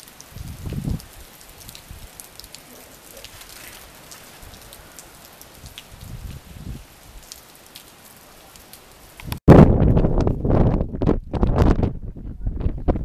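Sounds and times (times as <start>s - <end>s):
rain falling: 0.0s - 9.4s
low rumble on microphone: 9.5s - 13.0s.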